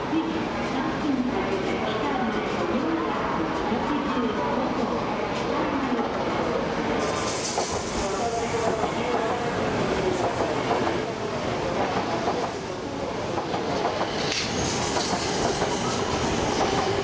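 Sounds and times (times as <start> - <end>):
train wheel and air rush: 7.0 - 9.4, 13.8 - 17.0.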